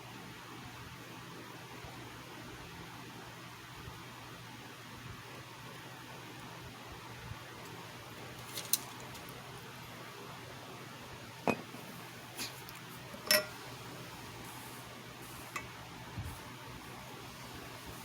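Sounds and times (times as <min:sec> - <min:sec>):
faint hiss: 0:11.6 - 0:18.0.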